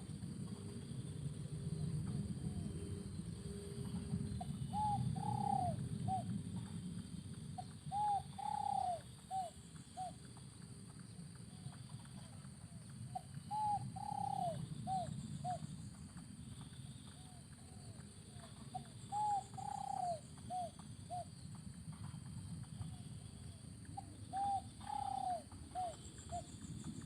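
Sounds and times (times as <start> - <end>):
dove cooing: 3.8 - 6.7, 7.6 - 10.2, 13.1 - 15.7, 17.2 - 21.3, 24.0 - 26.6.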